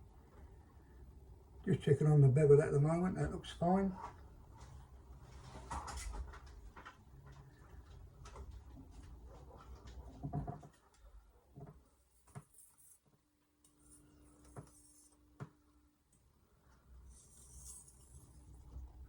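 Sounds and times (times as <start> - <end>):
faint steady hum: 0.0 - 19.0
soft rubbing sounds: 11.3 - 13.1, 13.7 - 15.4, 17.0 - 19.0.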